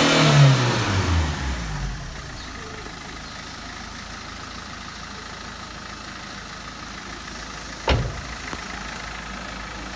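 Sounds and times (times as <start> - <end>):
car engine idling: 0.4 - 9.9
loud thump: 7.8 - 8.5.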